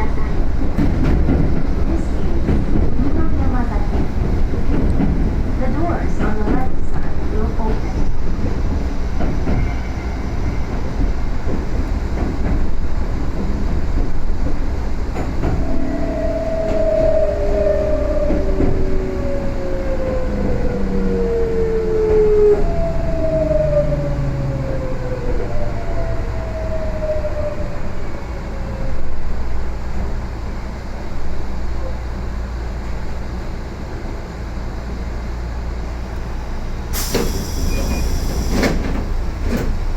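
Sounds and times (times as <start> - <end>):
train wheels rumbling on rail: 0.0 - 39.9
compressed air hiss: 36.9 - 38.8.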